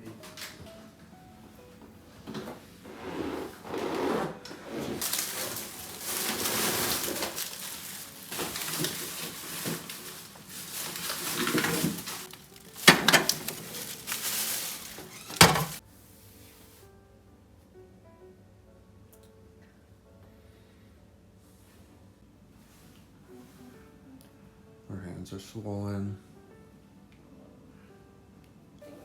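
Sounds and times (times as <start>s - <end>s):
rustling and clattering handling: 1.8s - 15.8s.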